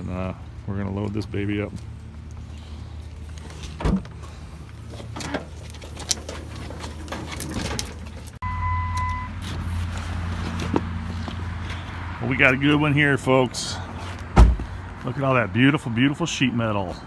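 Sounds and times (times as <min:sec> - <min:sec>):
vehicle engine humming: 0:00.0 - 0:16.0
clunks and knocks: 0:03.5 - 0:04.3, 0:05.0 - 0:08.4, 0:14.4 - 0:14.8
steady beep: 0:08.4 - 0:09.4.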